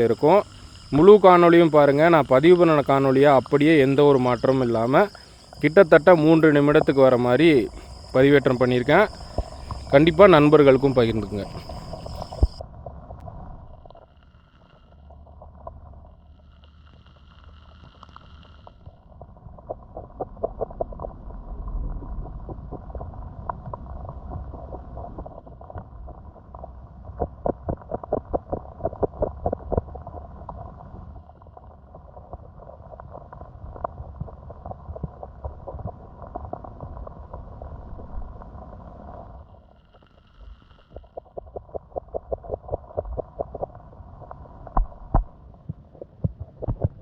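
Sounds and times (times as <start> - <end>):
muffled stream flowing: 0.0 - 14.0, 41.2 - 47.0.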